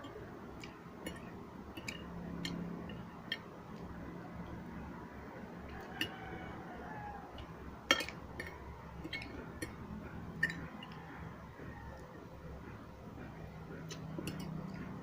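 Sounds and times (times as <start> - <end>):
low steady hum: 0.0 - 15.0
utensil clinking on dish: 7.4 - 11.1, 13.9 - 15.0.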